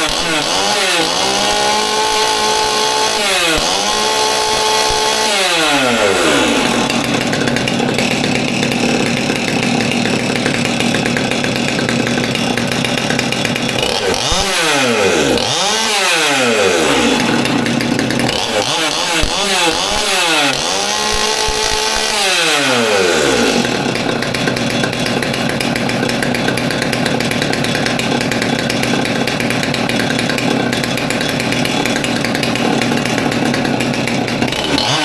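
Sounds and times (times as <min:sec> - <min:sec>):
chainsaw revving and idling: 0:00.0 - 0:35.0.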